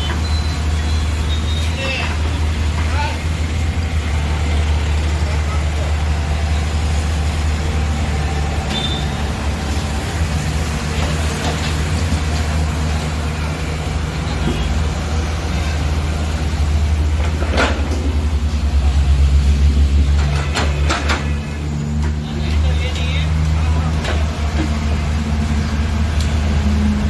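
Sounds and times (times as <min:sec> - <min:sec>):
heavy diesel engine running: 0:00.0 - 0:27.0
high squeak: 0:08.7 - 0:09.2.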